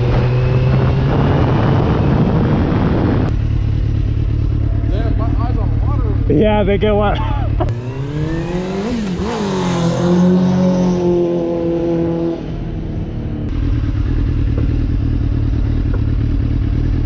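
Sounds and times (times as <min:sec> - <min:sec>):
sport bike engine running: 0:03.2 - 0:09.5, 0:13.4 - 0:17.0.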